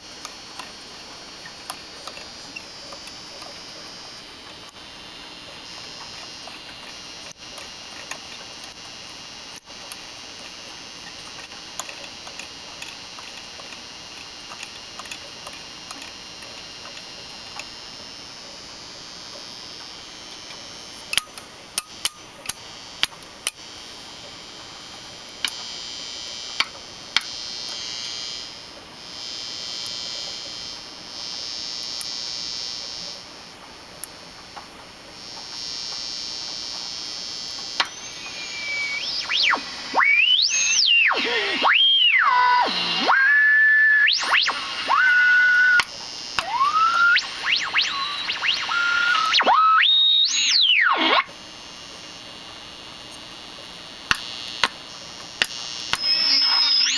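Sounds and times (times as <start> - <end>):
radio loudspeaker hissing: 0.0 - 21.2, 35.3 - 56.9
whistling squeals sweeping in pitch: 37.9 - 45.8, 46.4 - 51.2, 56.0 - 56.9.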